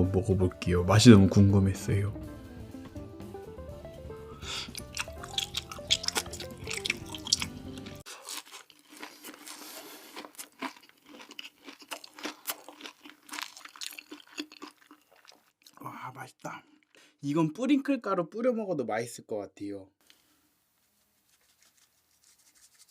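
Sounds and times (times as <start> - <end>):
plucked guitar music: 0.0 - 8.0
person chewing food: 4.4 - 15.8
wet mouth sounds: 4.5 - 15.8.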